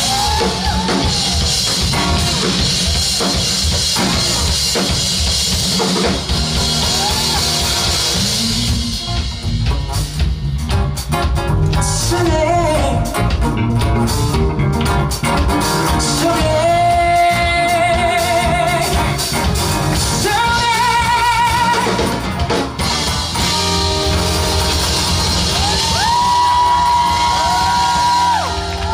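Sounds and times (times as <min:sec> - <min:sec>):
band with drums: 0:00.0 - 0:28.9
person singing with vibrato: 0:06.9 - 0:09.6, 0:11.7 - 0:13.4, 0:15.9 - 0:19.4, 0:20.0 - 0:22.2.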